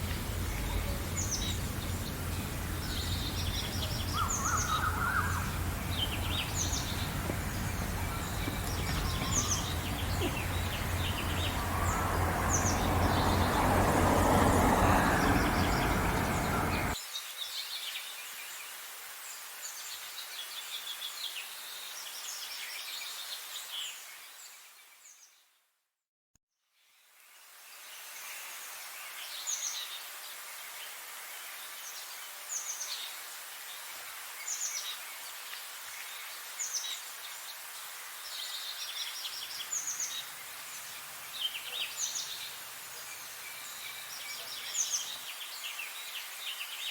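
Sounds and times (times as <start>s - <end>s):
birds chirping and singing: 0.0s - 17.0s
low background noise: 0.0s - 17.0s
rushing noise: 0.0s - 17.0s.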